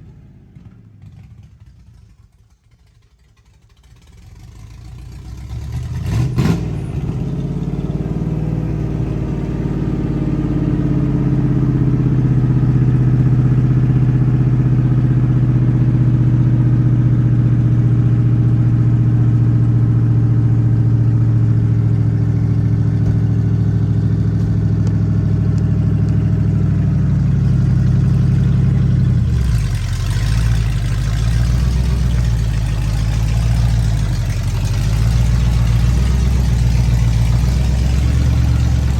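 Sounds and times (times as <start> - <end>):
truck engine running loud: 4.8 - 38.9.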